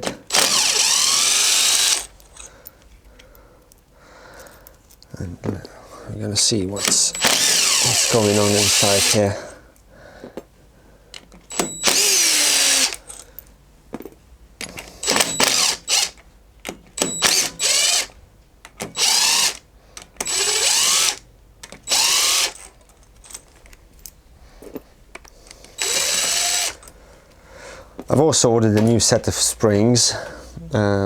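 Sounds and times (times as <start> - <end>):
impact gun bursts: 0.0 - 2.2, 6.8 - 9.3, 15.0 - 16.2, 17.0 - 18.1.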